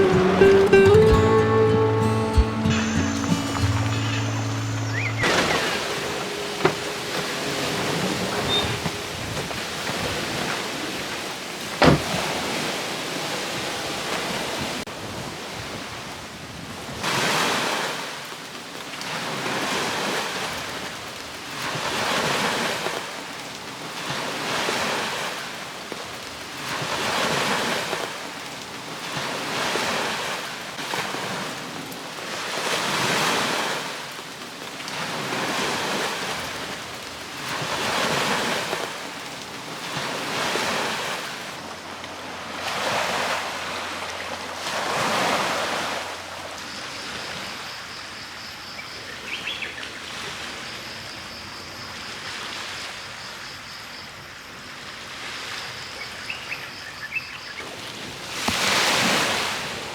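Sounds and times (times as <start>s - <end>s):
short chirps: 0.0s - 9.1s
small waves washing onto shore: 3.2s - 47.9s, 54.6s - 59.9s.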